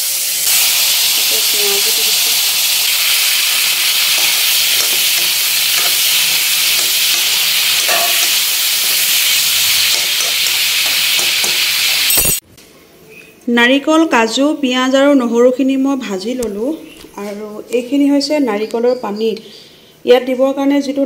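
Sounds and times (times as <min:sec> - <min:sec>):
food sizzling in hot oil: 0:00.0 - 0:12.4
steel spoon scraping a pan: 0:02.9 - 0:12.4.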